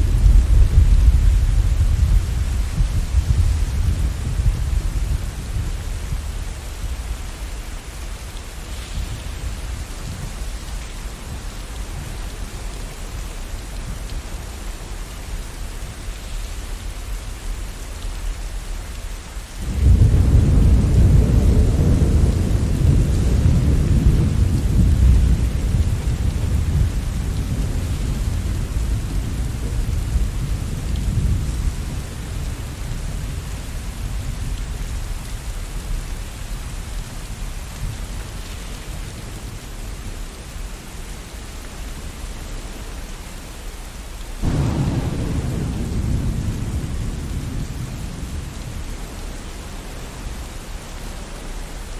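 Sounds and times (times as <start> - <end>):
thunder rumbling: 0.0 - 8.0, 19.6 - 35.9, 44.4 - 50.6
steady rain: 0.0 - 51.9.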